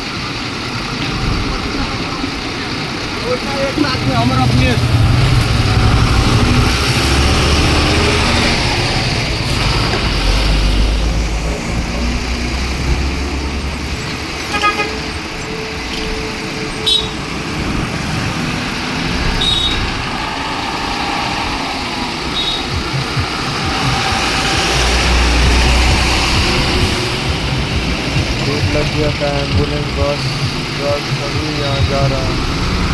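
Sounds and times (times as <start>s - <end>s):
truck and bus engines passing: 0.0s - 32.9s
vehicle horn: 14.4s - 17.8s, 19.1s - 20.2s, 22.2s - 27.4s.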